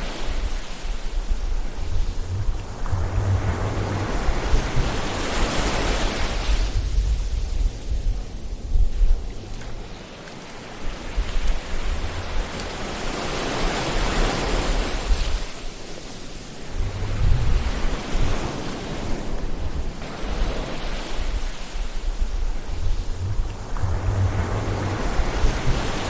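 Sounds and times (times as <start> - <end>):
ocean surf washing onto shore: 0.0 - 26.0
steady low rumble: 0.9 - 10.0, 16.6 - 18.4, 19.4 - 26.0.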